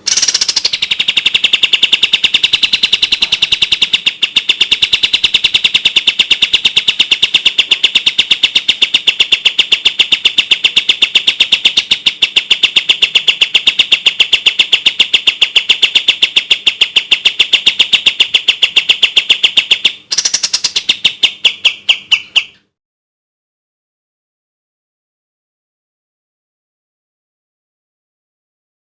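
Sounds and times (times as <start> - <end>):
bird singing sharp repeated notes: 0.0 - 22.8.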